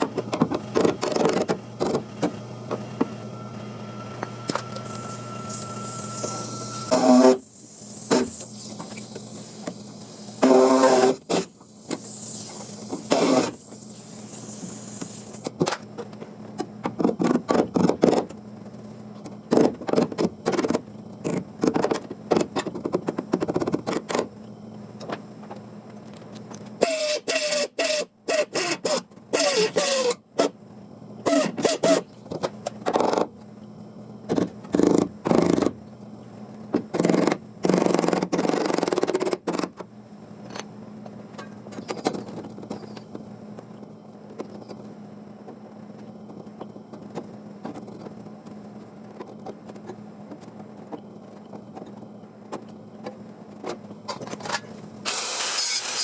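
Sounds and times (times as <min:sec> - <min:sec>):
short bursts of metalworking noise: 0:05.0 - 0:15.4, 0:26.8 - 0:30.5, 0:55.0 - 0:56.0.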